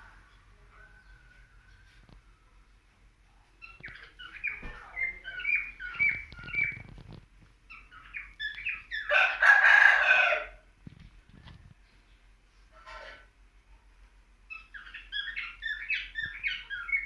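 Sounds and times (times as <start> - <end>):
bird chirping: 3.5 - 7.1, 7.7 - 9.2, 14.5 - 17.0.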